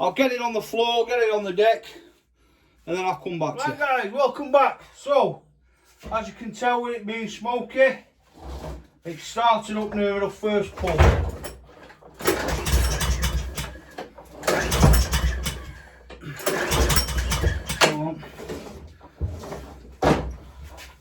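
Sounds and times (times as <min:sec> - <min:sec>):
lawnmower engine pull-started: 0:10.8 - 0:19.9.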